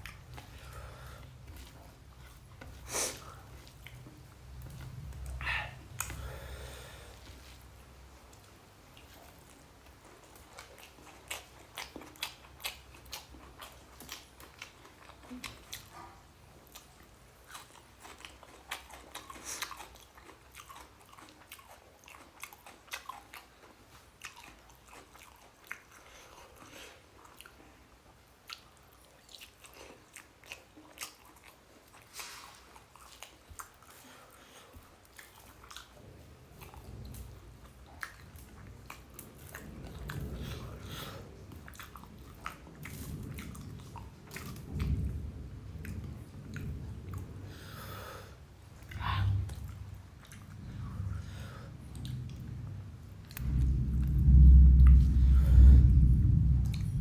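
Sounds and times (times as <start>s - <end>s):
person chewing food: 0.0s - 45.1s, 48.6s - 56.8s.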